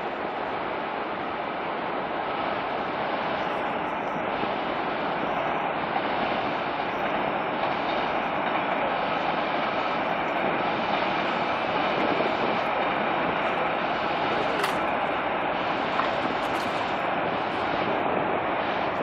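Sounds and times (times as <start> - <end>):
train rumbling over bridge: 0.0 - 19.0.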